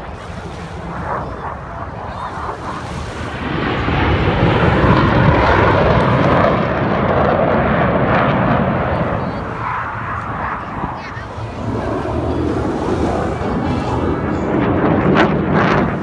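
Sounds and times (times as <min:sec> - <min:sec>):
plane passing over: 0:00.0 - 0:16.0.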